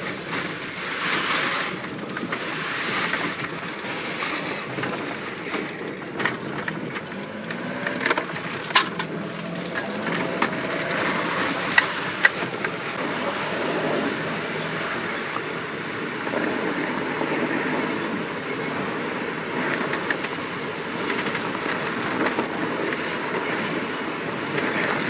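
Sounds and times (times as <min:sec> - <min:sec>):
rattles: 0:00.0 - 0:12.8
truck road noise rumble: 0:00.0 - 0:25.0.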